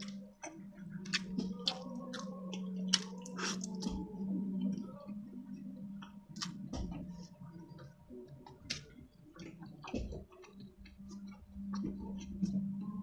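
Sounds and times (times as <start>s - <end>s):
chewing with mouth clicks: 0.0s - 4.9s, 8.5s - 12.7s
steady low hum: 0.0s - 13.0s.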